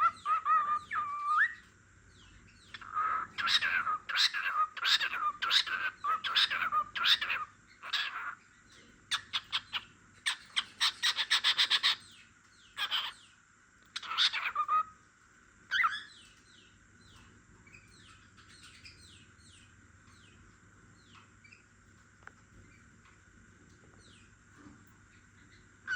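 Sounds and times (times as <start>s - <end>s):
cockatiel whistling and chirping: 0.0s - 1.6s, 14.0s - 14.9s, 15.7s - 16.2s.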